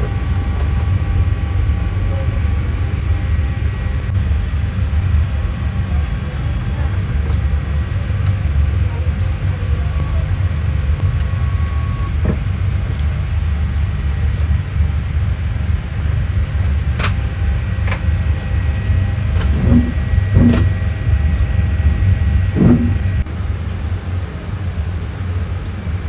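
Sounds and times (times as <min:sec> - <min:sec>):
airliner cabin rumble: 0:00.0 - 0:26.0
short knocks and clicks: 0:16.9 - 0:18.1, 0:19.2 - 0:20.8, 0:22.6 - 0:23.2.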